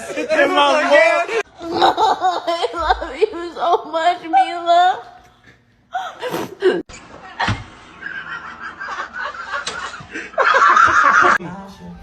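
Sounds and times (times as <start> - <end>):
person laughing: 1.6 - 3.5.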